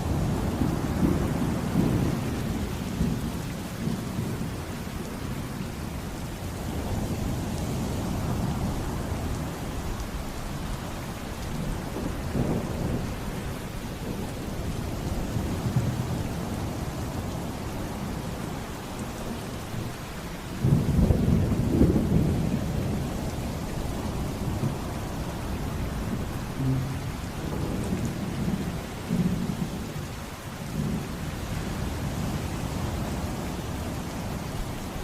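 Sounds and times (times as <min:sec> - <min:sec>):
thunder rumbling: 0:00.0 - 0:04.6, 0:06.3 - 0:18.2, 0:24.0 - 0:29.6
heavy rain: 0:00.0 - 0:35.0.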